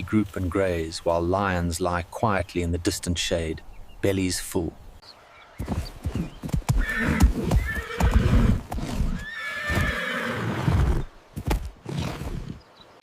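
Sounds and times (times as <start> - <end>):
hooves thudding on ground: 0.0 - 3.4, 5.5 - 10.0, 11.2 - 12.6
horse whinnying: 6.7 - 11.1.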